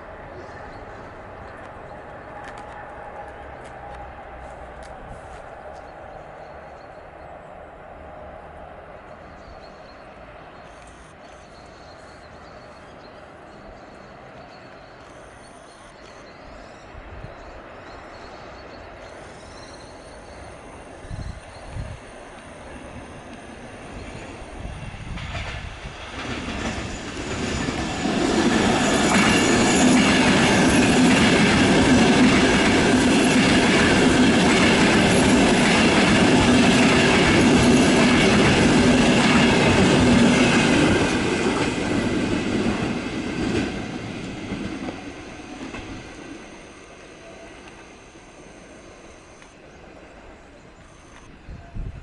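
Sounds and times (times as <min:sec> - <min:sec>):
train wheels running over rails: 0:00.0 - 0:06.8, 0:17.6 - 0:50.2.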